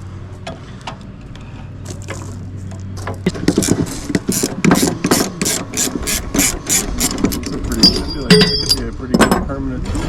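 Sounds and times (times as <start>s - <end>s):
low steady hum: 0.0s - 9.6s
hand tools clanking on metal: 3.0s - 9.5s.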